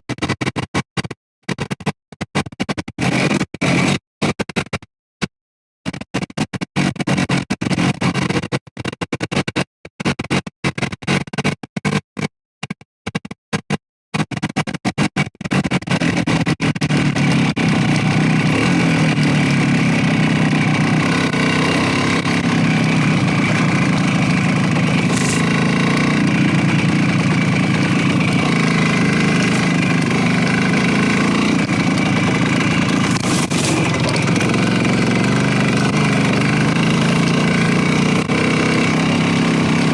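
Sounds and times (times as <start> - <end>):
motorcycle engine running: 3.0 - 4.7, 6.8 - 8.6, 13.7 - 39.9.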